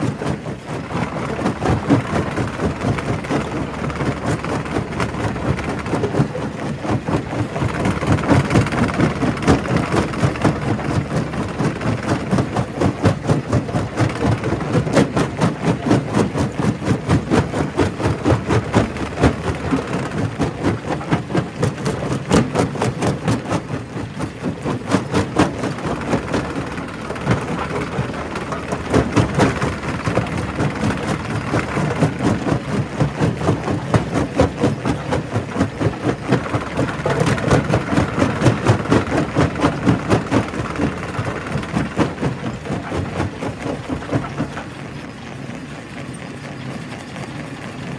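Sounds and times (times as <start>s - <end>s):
rock crusher running: 0.0s - 45.2s.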